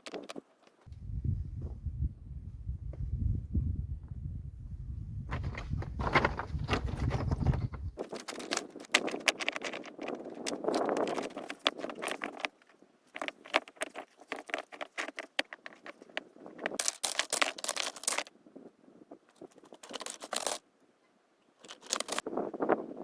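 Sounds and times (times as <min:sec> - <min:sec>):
stones crunching on rocky ground: 0:05.3 - 0:18.3, 0:21.6 - 0:22.2.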